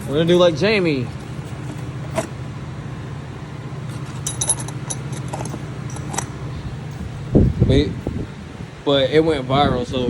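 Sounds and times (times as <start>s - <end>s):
low machine hum: 0.0s - 10.0s
small metal parts clinking: 3.9s - 6.4s.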